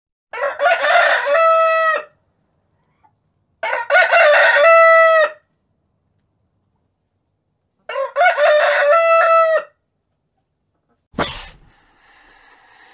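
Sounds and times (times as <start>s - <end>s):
rooster crowing: 0.3s - 2.2s, 3.6s - 5.4s, 7.9s - 9.8s.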